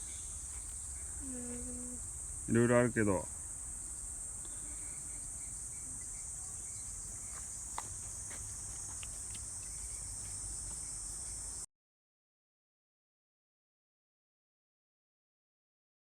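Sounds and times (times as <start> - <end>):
insects shrilling: 0.0 - 11.6.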